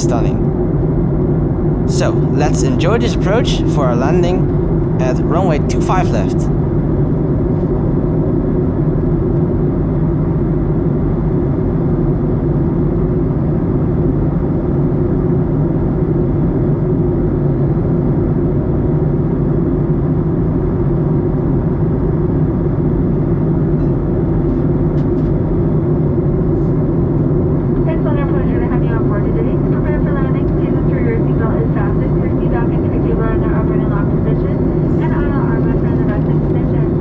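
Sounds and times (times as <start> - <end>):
airplane cabin engine rumble: 0.0 - 7.5.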